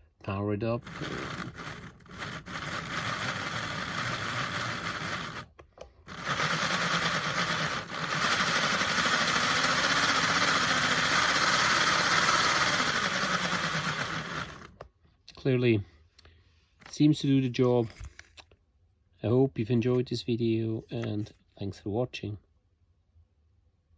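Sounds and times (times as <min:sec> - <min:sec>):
model locomotive motor whirring: 0:00.8 - 0:05.5, 0:06.1 - 0:14.8.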